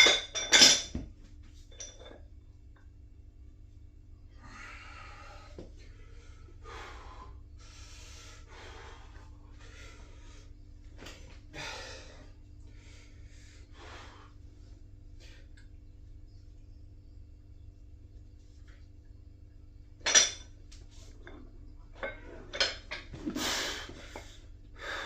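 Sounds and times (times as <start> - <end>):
low hum: 0.0 - 25.0
man breathing hard: 4.3 - 10.7, 11.4 - 14.5, 23.3 - 25.0.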